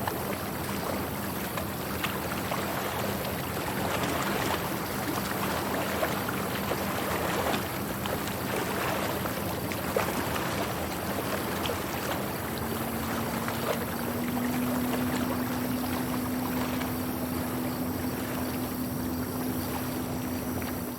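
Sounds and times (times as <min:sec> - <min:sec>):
low boat engine hum: 0:00.0 - 0:20.9
small water splashes: 0:00.0 - 0:20.9
water rushing past boat: 0:00.0 - 0:20.9.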